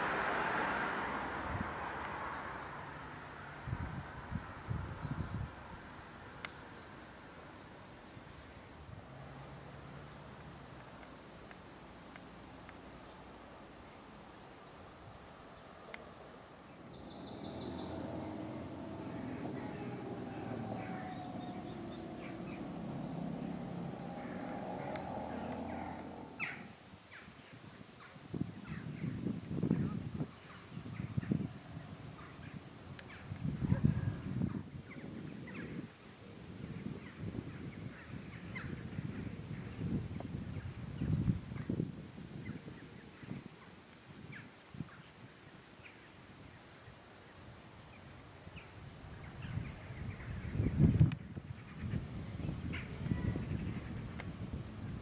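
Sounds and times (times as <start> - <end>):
small birds chirping and singing: 1.2 - 9.2, 16.7 - 27.6, 28.5 - 35.9
rushing noise: 16.8 - 26.8
small bird calling: 16.8 - 26.8
steady low drone: 16.8 - 26.8.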